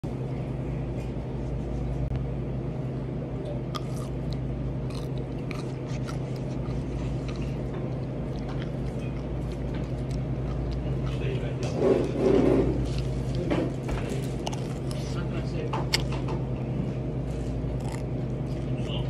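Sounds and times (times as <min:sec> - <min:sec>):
steady low hum: 0:00.0 - 0:19.0
cucumber chewing and crunching: 0:03.7 - 0:16.4, 0:17.2 - 0:19.0.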